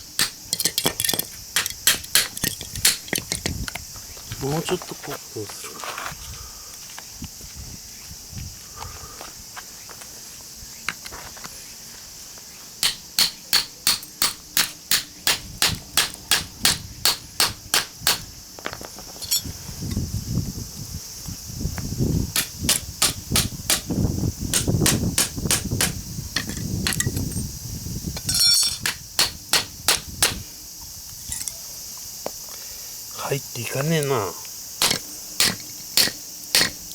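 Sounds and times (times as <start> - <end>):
insects chirping: 0.0 - 36.9
hammer striking chisel on metal: 0.2 - 3.2, 12.8 - 18.2, 34.8 - 36.8.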